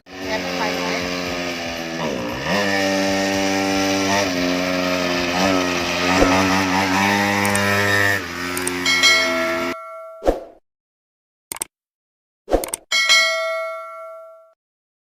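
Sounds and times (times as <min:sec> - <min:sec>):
mini-bike engine revving high: 0:00.0 - 0:09.8.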